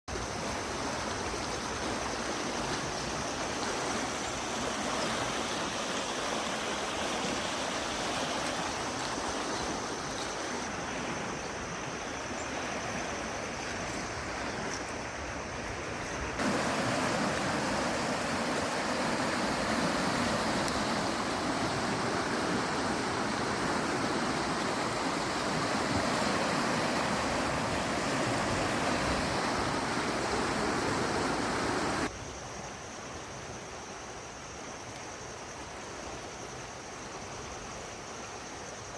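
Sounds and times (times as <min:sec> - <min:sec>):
rain falling: 0:16.4 - 0:32.1.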